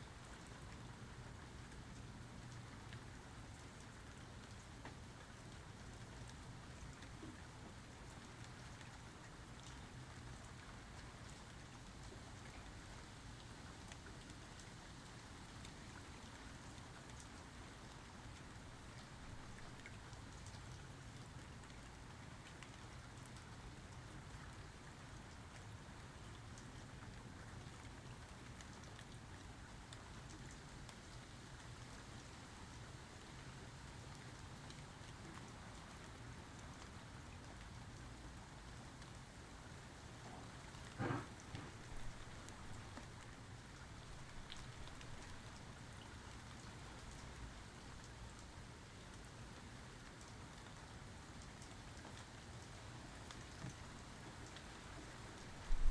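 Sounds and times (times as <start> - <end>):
light rain falling: 0.0 - 55.9
raindrop ticks: 40.2 - 49.3, 51.4 - 55.9.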